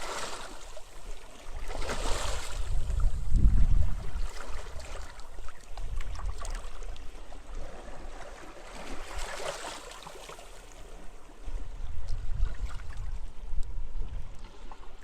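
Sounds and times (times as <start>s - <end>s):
small waves lapping on shore: 0.0s - 15.0s
low wind rumble: 2.3s - 4.9s.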